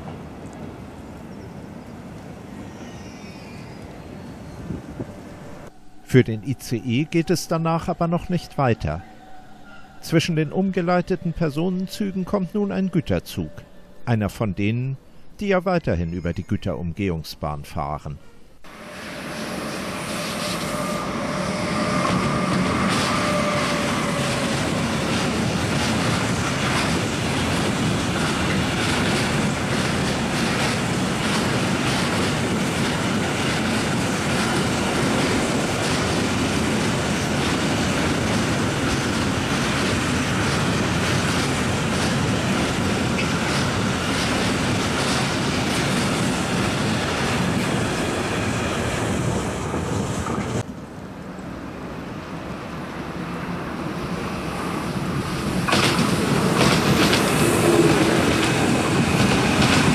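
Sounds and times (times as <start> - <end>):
freight train rumbling past: 0.0 - 15.2, 18.6 - 59.9
wheels clacking: 55.6 - 59.9.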